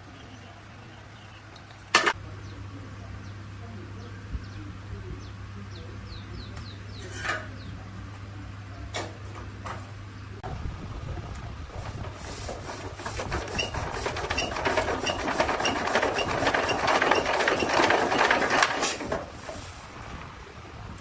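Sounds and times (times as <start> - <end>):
machine rattling: 11.7 - 20.0.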